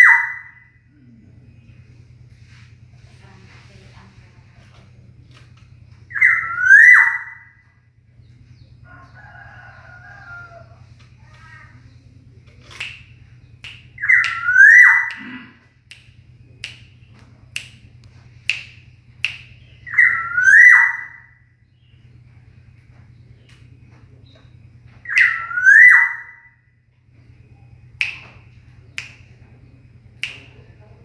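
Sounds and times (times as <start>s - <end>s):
bird whistled calls: 0.0s - 0.7s, 6.0s - 7.6s, 12.7s - 15.4s, 18.5s - 22.1s, 24.2s - 26.6s
bird chirps: 0.0s - 2.4s, 5.1s - 30.9s.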